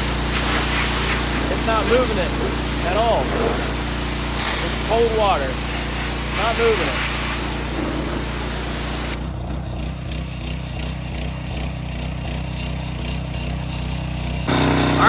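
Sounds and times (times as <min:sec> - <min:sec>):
pressure washer spray hissing: 0:00.0 - 0:09.4, 0:14.2 - 0:15.0
pressure washer engine pulsing: 0:00.0 - 0:15.0.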